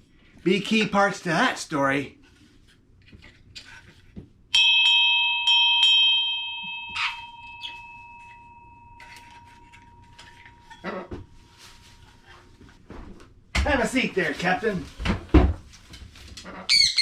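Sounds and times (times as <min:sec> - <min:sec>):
bell struck and ringing: 0:04.5 - 0:11.8.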